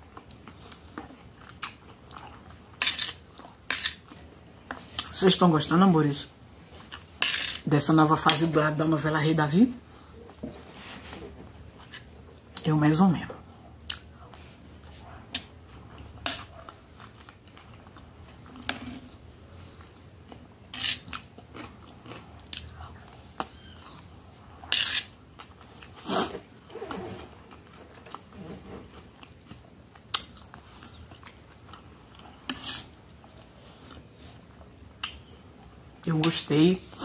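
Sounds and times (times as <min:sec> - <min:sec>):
person chewing: 0:00.0 - 0:05.2, 0:13.8 - 0:26.4, 0:27.3 - 0:35.8.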